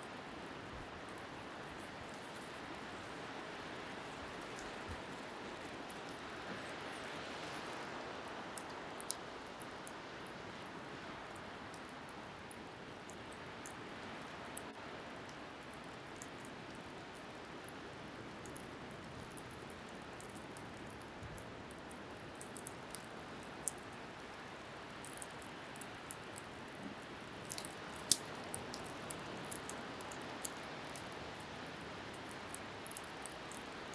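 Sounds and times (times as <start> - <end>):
wind: 0.0 - 33.9
waves: 2.5 - 12.4
bonfire crackling and popping: 25.0 - 31.4, 32.2 - 33.9.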